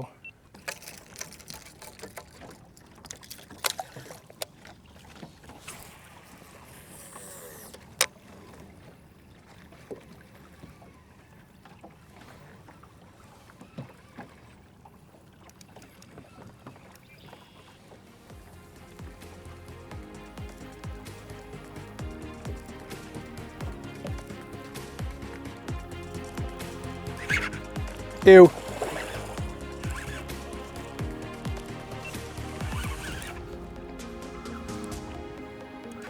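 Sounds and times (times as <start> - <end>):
fishing gear clicking and knocking: 0.0 - 6.0, 18.3 - 36.0
faint water: 0.0 - 36.0
wind: 0.0 - 36.0.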